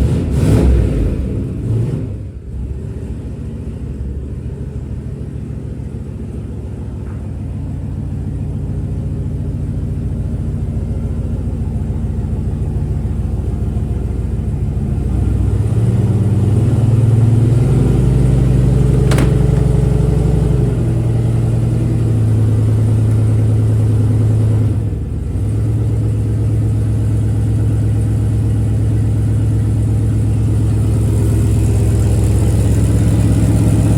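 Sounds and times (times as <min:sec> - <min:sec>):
car engine running: 0:02.8 - 0:33.9.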